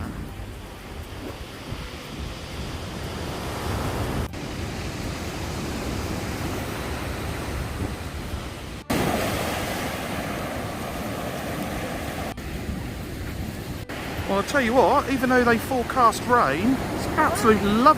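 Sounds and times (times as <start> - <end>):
sea waves washing onto beach: 0.0 - 17.9
wind on microphone: 0.0 - 17.9.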